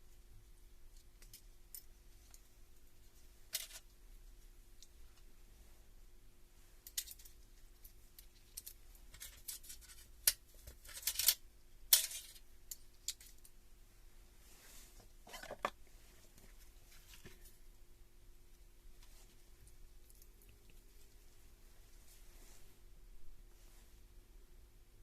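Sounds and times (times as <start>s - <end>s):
clicks and scrapes of hard parts: 15.2s - 15.8s.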